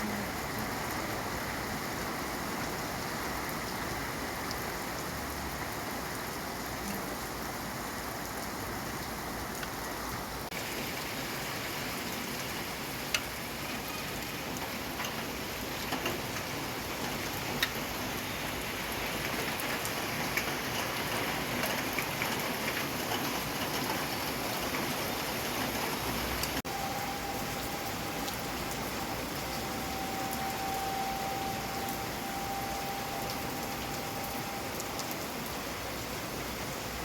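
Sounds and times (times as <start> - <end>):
rain falling: 0.0 - 37.0
raindrop ticks: 8.3 - 10.6, 13.0 - 25.0, 26.4 - 35.6.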